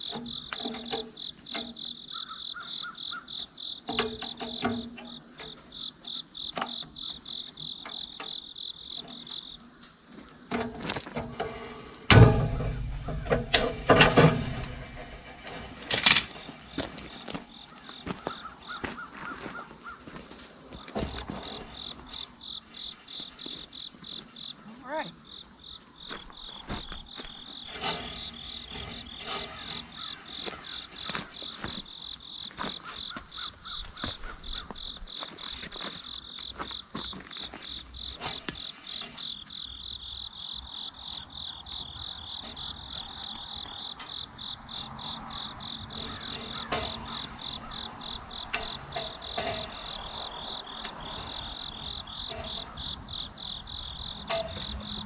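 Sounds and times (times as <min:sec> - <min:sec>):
insects chirping: 0:00.0 - 0:55.0
sharp knocks: 0:10.5 - 0:16.9, 0:45.2 - 0:55.0.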